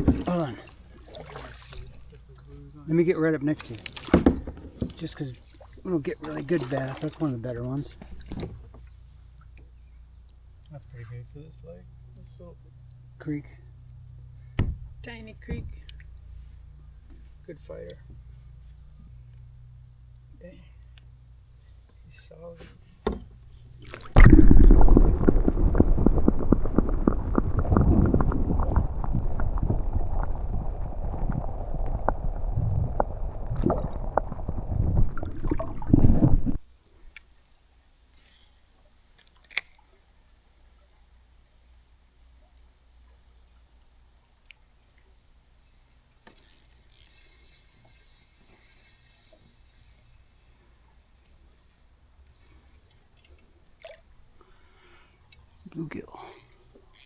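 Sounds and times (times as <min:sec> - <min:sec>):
muffled underwater rumbling: 0:00.0 - 0:36.6
crickets buzzing: 0:00.0 - 0:57.0
faint clicks: 0:20.1 - 0:22.2.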